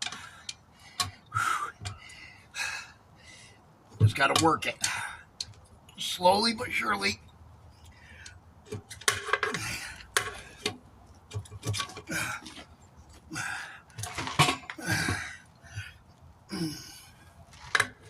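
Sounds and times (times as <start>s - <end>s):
metal tools clanking on wheel rim: 3.9s - 15.9s, 17.5s - 18.0s
person grunting and breathing hard: 12.1s - 12.6s, 13.3s - 13.9s, 14.8s - 17.2s.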